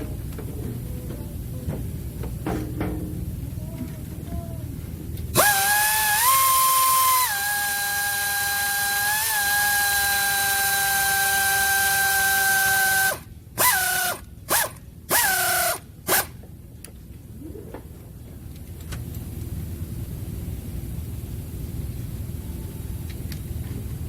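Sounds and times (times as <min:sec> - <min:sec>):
power drill whining: 0:05.4 - 0:16.3.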